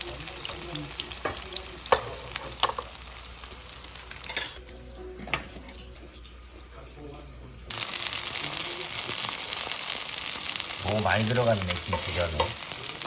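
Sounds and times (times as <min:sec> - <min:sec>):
batter sizzling in oil: 0:00.0 - 0:04.6, 0:05.4 - 0:13.0.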